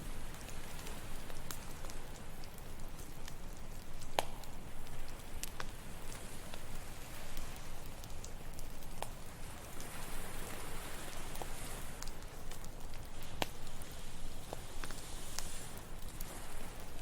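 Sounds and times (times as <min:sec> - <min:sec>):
campfire crackling and popping: 0:00.0 - 0:17.0
ocean surf: 0:09.4 - 0:12.1.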